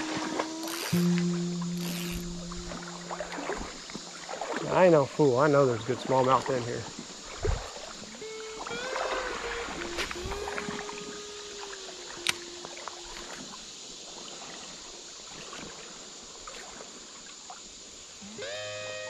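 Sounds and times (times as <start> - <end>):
creek water running: 0.0 - 19.0
sharp click: 0.6 - 3.7.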